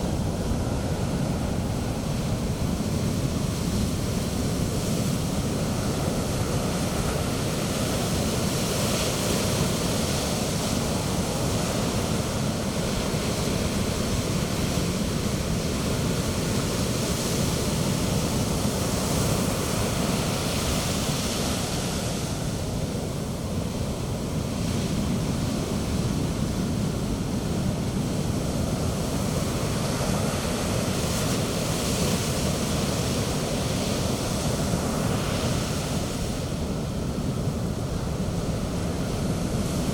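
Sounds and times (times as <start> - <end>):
sea surf breaking on beach: 0.0 - 39.9.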